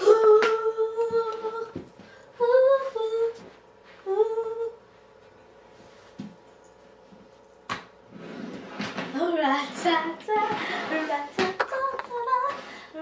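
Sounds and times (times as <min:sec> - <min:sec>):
girl humming: 0:00.0 - 0:01.8, 0:04.0 - 0:04.8.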